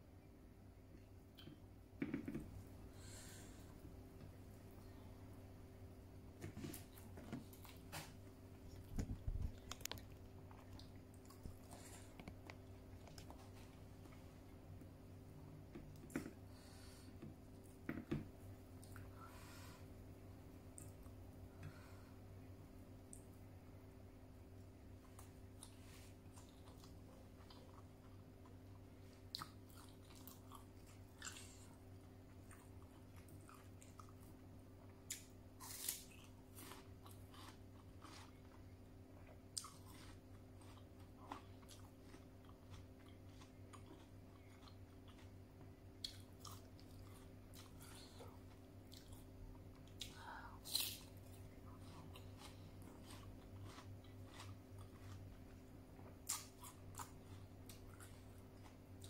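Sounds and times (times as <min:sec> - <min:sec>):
person chewing crunchy fruit: 0:06.4 - 0:14.6, 0:24.9 - 0:59.0.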